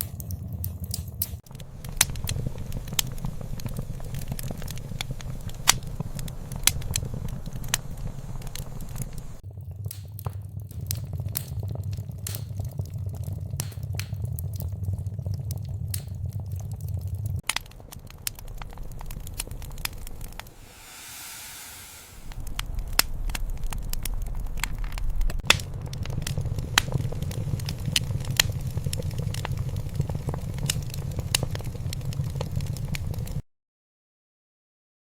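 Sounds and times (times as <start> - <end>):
wood fire crackling and popping: 0.0 - 22.1, 23.0 - 33.4
short hiss: 20.5 - 22.4
low rumble: 20.5 - 22.5.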